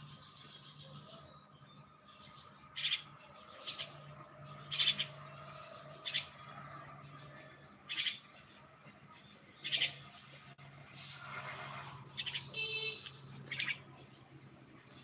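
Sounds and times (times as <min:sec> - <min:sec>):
small bird calling: 0:00.0 - 0:06.4, 0:12.1 - 0:13.9.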